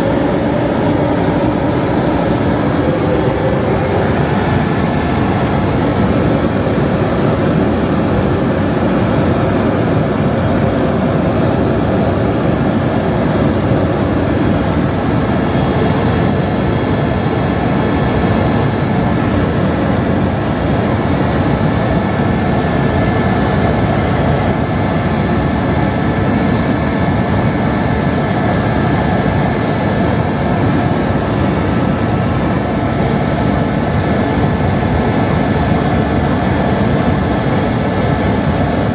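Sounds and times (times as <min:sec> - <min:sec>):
high whine: 0:00.0 - 0:10.1
helicopter rumble: 0:00.0 - 0:38.9.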